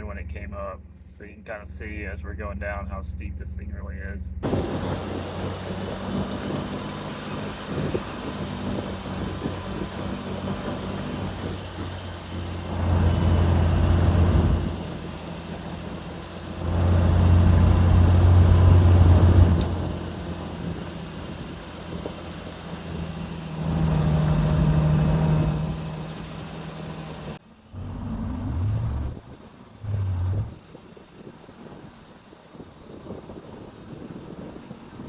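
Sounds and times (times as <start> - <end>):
short low bursts: 0.0 - 4.7
vehicle engine revving: 4.2 - 30.8.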